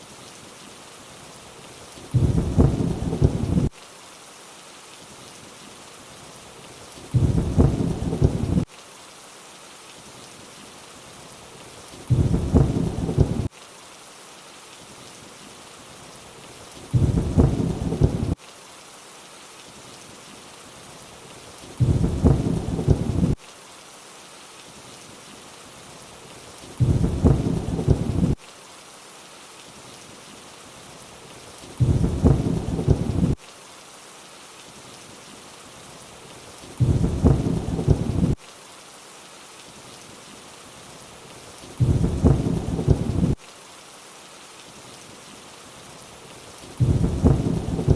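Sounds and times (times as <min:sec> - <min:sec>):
rain hiss: 0:00.0 - 0:47.9
low thunder rumble: 0:02.1 - 0:03.7, 0:07.2 - 0:08.6, 0:12.1 - 0:13.5, 0:17.0 - 0:18.4, 0:21.8 - 0:23.4, 0:26.8 - 0:28.4, 0:31.8 - 0:33.4, 0:36.8 - 0:38.4, 0:41.8 - 0:43.4, 0:46.8 - 0:47.9.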